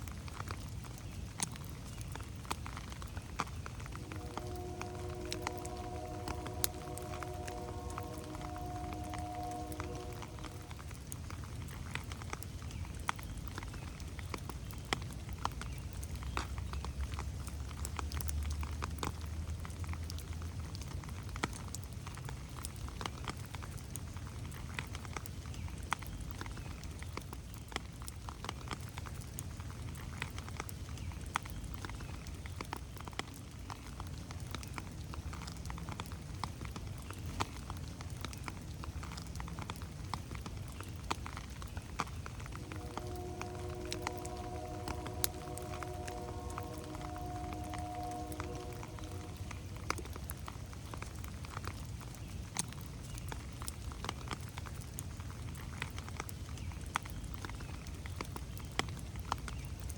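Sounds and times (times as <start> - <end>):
rain drops pattering on leaves: 0.0 - 59.9
low rumble: 3.8 - 11.3, 42.2 - 51.4.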